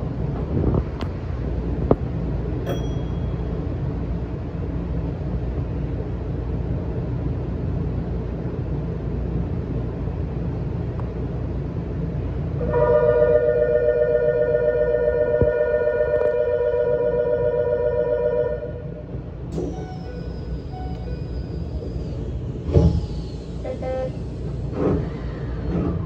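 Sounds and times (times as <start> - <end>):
train rumbling: 0.0 - 26.0.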